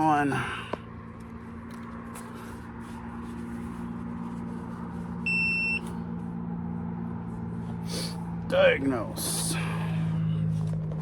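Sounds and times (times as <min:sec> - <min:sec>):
steady low hum: 0:00.0 - 0:11.0
electronic beep: 0:05.3 - 0:05.8.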